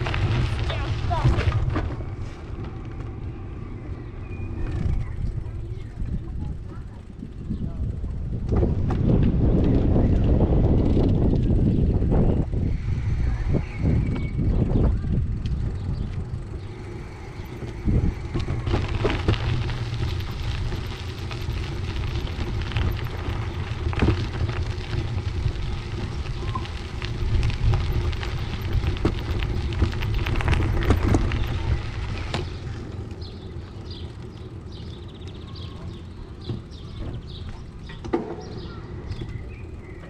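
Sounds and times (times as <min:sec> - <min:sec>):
bicycle tyre noise: 0:00.0 - 0:40.0
bike clicks and rattles: 0:00.0 - 0:40.0
wind rumbling on microphone: 0:00.0 - 0:40.0.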